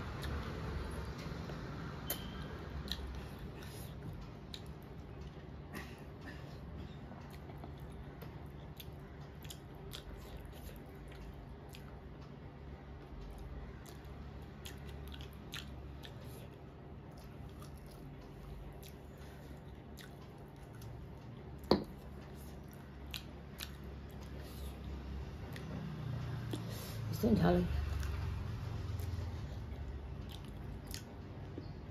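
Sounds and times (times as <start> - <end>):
steady low hum: 0.0 - 31.9
person chewing chicken: 7.3 - 12.0, 13.8 - 21.1, 22.0 - 24.8, 28.9 - 31.7.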